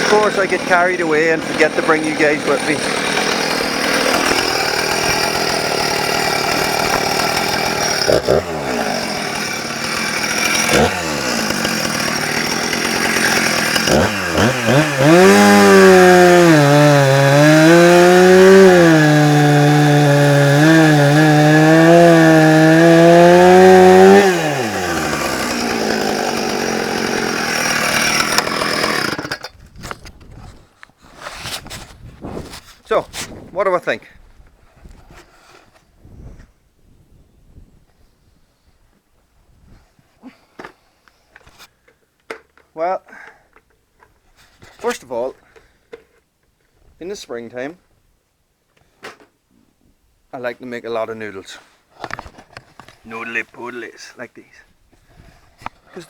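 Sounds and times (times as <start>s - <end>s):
chainsaw running: 0.0s - 29.6s, 53.1s - 53.9s
chainsaw cutting wood: 0.0s - 30.1s.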